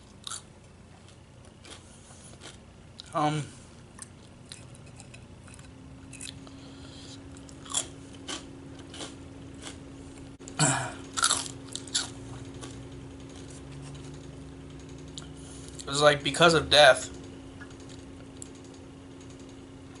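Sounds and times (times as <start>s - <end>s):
person chewing crunchy food: 0.0s - 3.2s, 3.9s - 14.2s.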